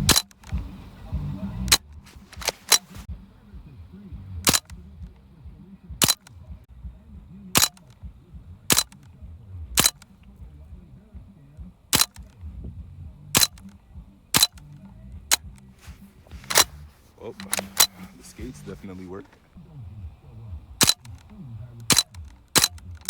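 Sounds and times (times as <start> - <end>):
bb gun shots: 0.0 - 0.8, 1.7 - 3.1, 4.4 - 4.9, 6.0 - 6.4, 7.5 - 8.1, 8.7 - 9.2, 9.8 - 10.2, 11.9 - 12.5, 13.4 - 19.3, 20.8 - 23.0.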